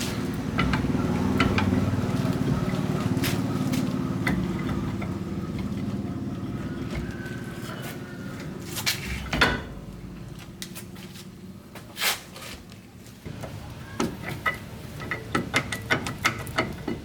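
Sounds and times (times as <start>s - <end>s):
engine running steadily: 0.0s - 11.7s
sharp metallic clicks and knocks: 0.3s - 2.8s, 13.4s - 17.0s.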